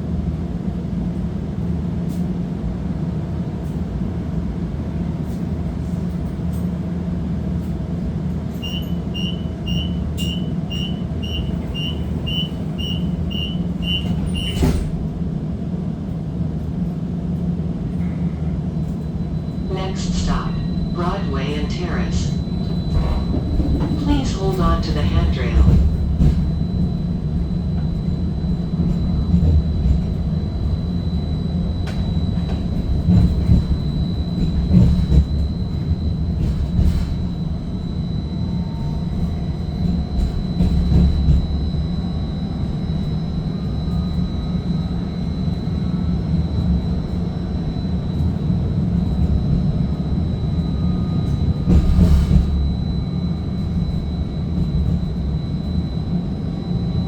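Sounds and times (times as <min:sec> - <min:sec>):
streetcar wheels rumbling on rail: 0:00.0 - 0:57.0
high whine: 0:19.2 - 0:36.6.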